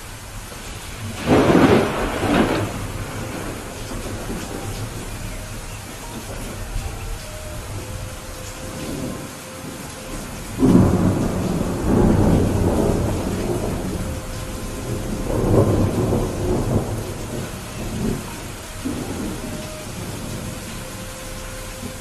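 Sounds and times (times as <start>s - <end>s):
rolling thunder: 0.0s - 22.0s
steady rainfall: 0.0s - 22.0s.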